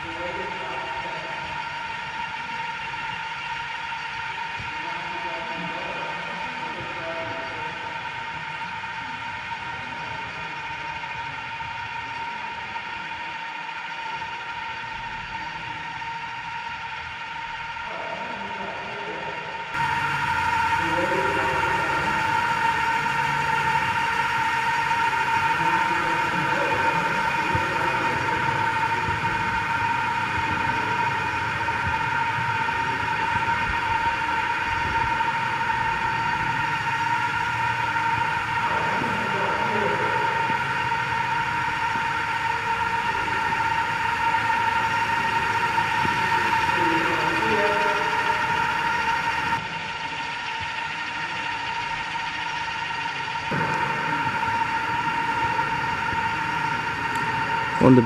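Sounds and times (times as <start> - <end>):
helicopter rotors whirring hum: 0.0 - 58.0.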